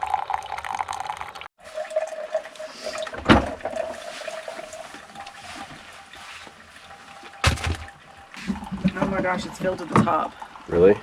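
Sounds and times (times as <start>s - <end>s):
sharp knocks: 7.4s - 7.9s.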